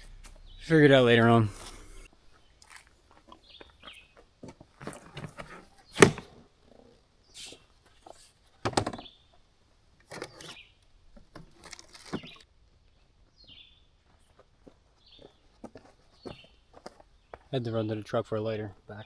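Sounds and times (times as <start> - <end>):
camping gear knocking and rustling: 1.6 - 6.8, 7.9 - 12.5, 14.3 - 17.5.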